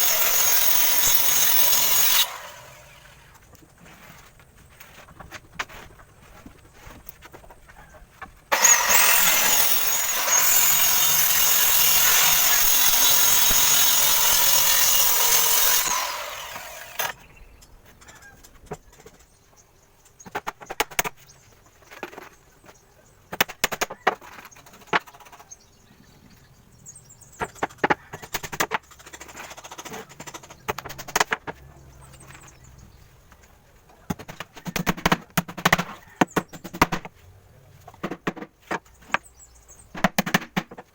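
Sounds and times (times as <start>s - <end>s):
power saw cutting plywood: 0.0s - 3.4s, 8.5s - 17.2s
wooden knocks and clatter: 37.9s - 39.3s.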